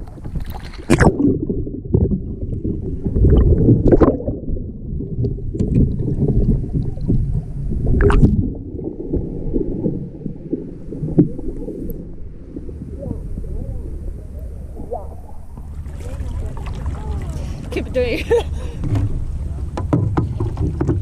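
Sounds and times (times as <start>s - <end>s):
water splashing and gurgling: 0.0s - 21.0s
sharp splashes: 14.8s - 19.5s.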